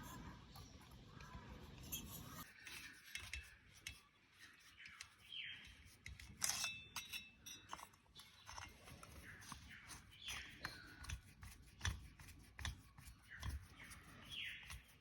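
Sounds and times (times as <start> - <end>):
small metal parts clicking: 4.8 - 9.2.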